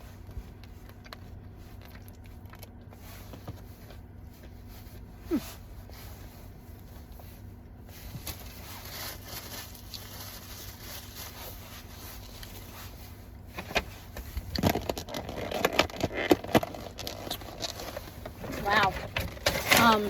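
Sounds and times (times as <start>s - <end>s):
crisp crunching and chewing: 0.0s - 5.3s, 6.7s - 13.0s, 14.0s - 19.9s
faint low hum: 0.0s - 20.0s.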